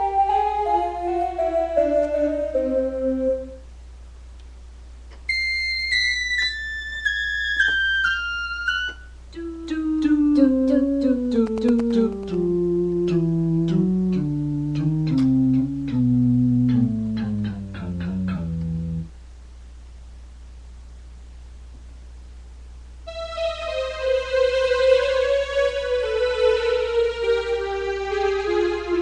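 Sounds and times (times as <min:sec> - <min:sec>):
digital piano descending notes: 0:00.0 - 0:03.6, 0:05.3 - 0:19.1, 0:23.1 - 0:29.0
low hum: 0:09.2 - 0:20.9.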